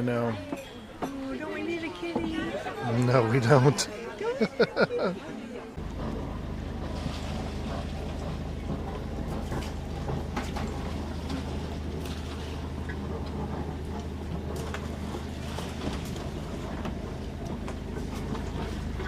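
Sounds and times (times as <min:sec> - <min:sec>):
low engine drone: 0:05.8 - 0:19.0.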